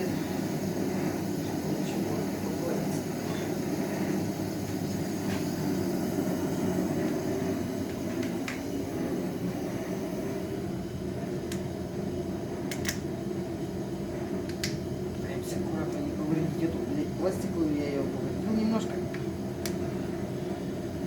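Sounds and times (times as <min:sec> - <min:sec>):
fan-like whirring hum: 0:00.0 - 0:21.0.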